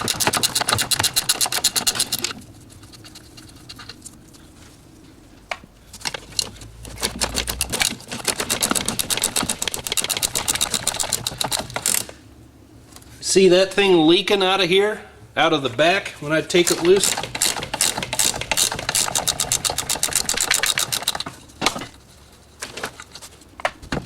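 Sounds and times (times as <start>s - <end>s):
ratchet wrench clicking: 6.8s - 12.1s, 16.6s - 21.2s.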